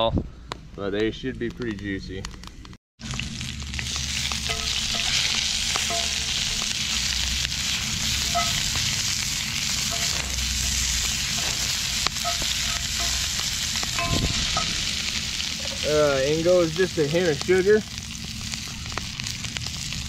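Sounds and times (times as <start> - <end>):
vegetables sizzling in oil: 3.0 - 20.0
spatula stirring and scraping: 4.2 - 15.8.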